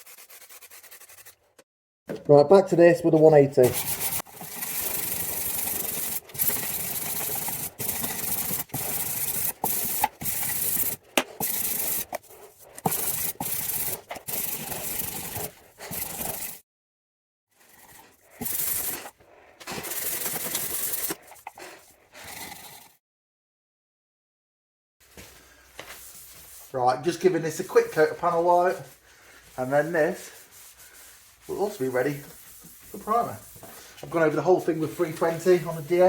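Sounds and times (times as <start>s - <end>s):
sandpaper rasping on fibreglass: 0.0s - 1.4s, 3.6s - 16.6s, 26.0s - 36.0s.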